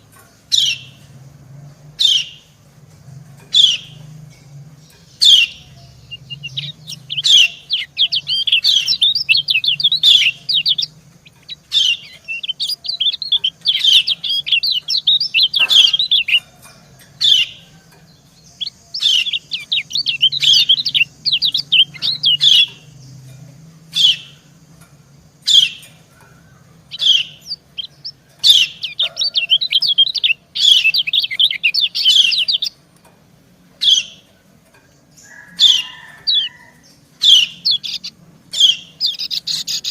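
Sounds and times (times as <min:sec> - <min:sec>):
bird fast twittering: 0:05.2 - 0:16.4, 0:18.5 - 0:23.0, 0:26.9 - 0:32.8, 0:37.2 - 0:39.9
bird sharp falling calls: 0:05.2 - 0:23.0.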